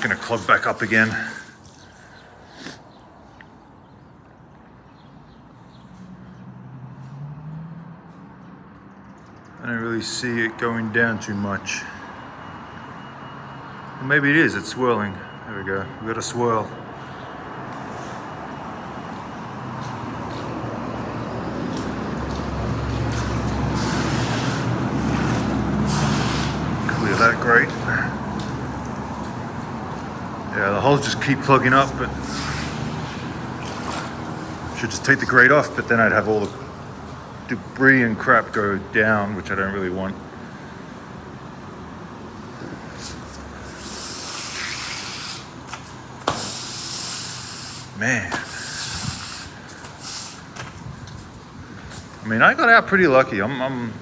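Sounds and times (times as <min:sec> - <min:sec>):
running water hissing: 0:00.0 - 0:03.0, 0:21.5 - 0:37.7, 0:42.6 - 0:51.1
road traffic noise: 0:00.0 - 0:54.0.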